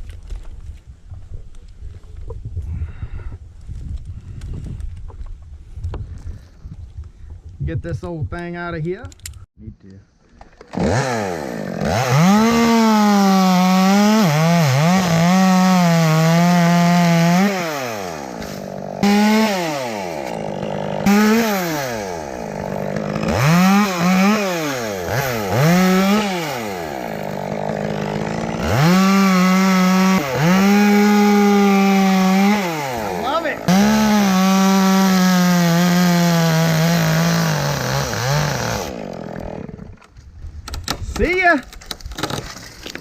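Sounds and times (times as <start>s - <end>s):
chainsaw cutting wood: 10.6s - 41.3s.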